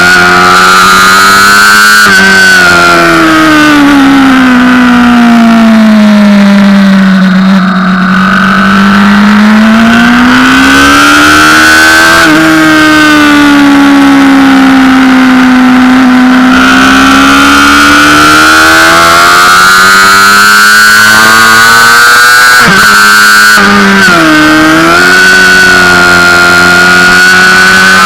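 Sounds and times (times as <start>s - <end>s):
sport bike engine at high revs: 0.0s - 28.0s.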